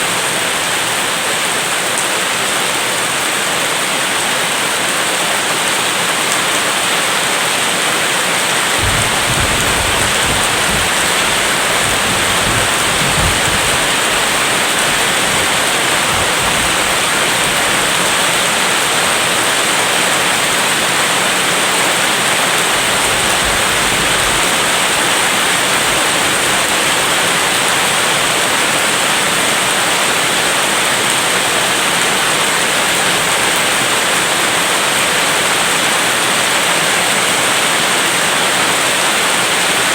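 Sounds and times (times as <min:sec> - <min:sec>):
heavy rain: 0:00.0 - 0:39.9
distant thunder rumbling: 0:08.4 - 0:18.9, 0:22.6 - 0:28.5.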